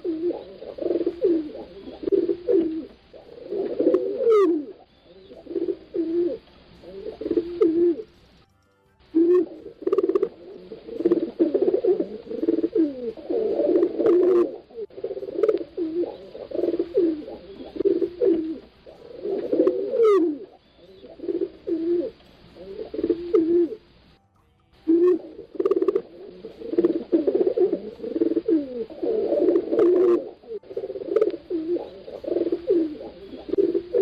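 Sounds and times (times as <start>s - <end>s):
pigeons cooing: 0.0s - 8.4s, 9.1s - 24.0s, 24.9s - 34.0s.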